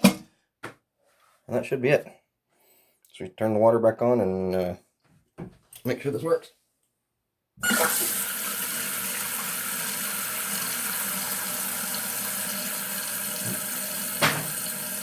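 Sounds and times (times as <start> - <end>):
water rushing into toilet tank: 7.6 - 15.0.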